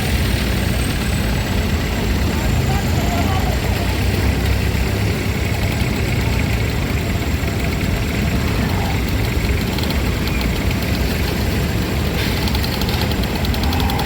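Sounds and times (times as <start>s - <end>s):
heavy engine rumbling: 0.0s - 14.0s
fast even ticking: 3.6s - 14.0s.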